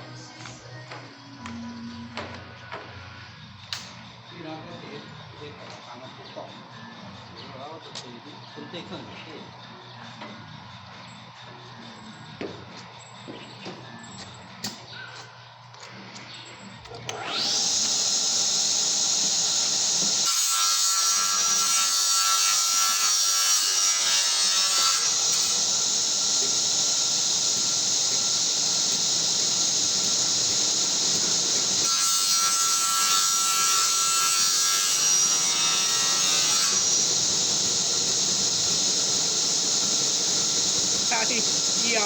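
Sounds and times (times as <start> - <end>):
table saw whining: 17.0 - 42.0.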